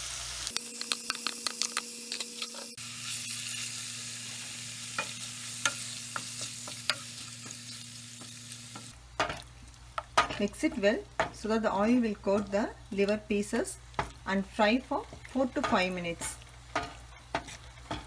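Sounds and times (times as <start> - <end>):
liver sizzling in hot oil: 0.0 - 18.0
wooden spatula tapping pan: 12.2 - 18.0.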